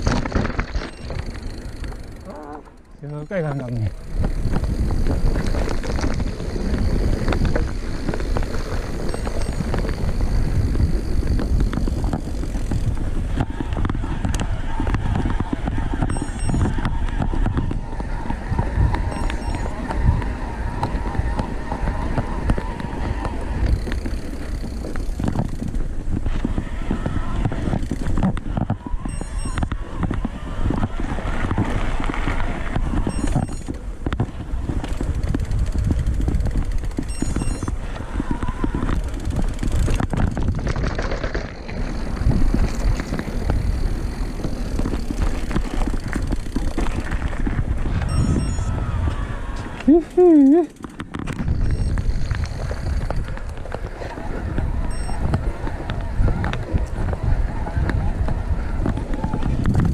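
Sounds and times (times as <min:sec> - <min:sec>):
bike rattling over bumps: 0:00.0 - 0:59.9
wind buffeting microphone: 0:00.0 - 0:59.9.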